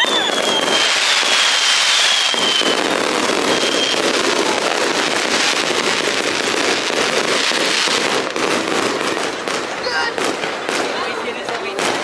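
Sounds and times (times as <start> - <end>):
faint firework whistle: 0.0 - 4.6
fireworks crackling and banging: 0.0 - 12.0.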